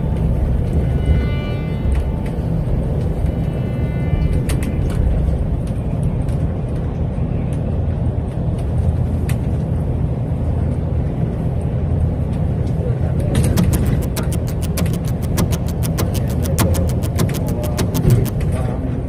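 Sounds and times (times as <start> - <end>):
faint clicks: 13.6 - 18.4.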